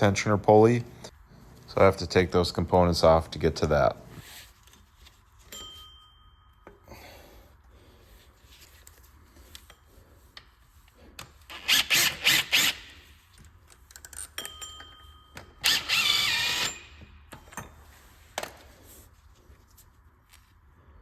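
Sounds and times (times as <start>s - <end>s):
cordless power tool whirring: 15.6s - 17.0s.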